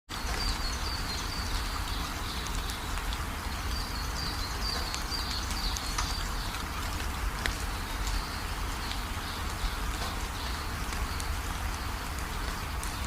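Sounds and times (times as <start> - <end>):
rain hissing: 0.1 - 13.0
raindrops ticking: 0.1 - 13.0.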